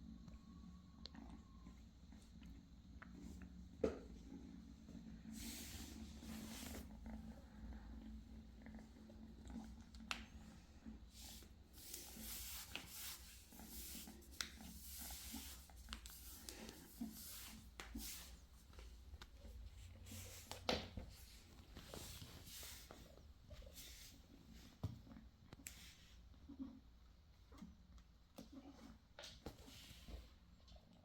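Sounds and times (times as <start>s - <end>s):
kittens scratching and rustling: 2.1s - 26.7s.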